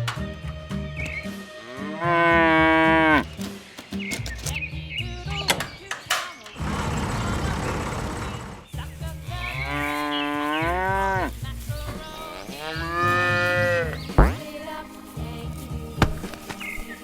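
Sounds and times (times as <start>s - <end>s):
background music: 0.0s - 17.0s
cow mooing: 1.6s - 3.3s, 9.4s - 11.3s, 12.2s - 14.4s.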